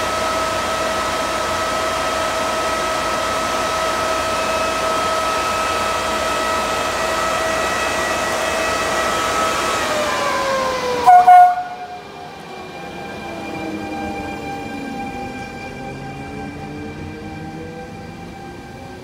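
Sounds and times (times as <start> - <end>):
electric locomotive rumble and whine: 0.0 - 19.0
train coaches rumbling past: 0.0 - 19.0
train horn blast: 11.0 - 12.2.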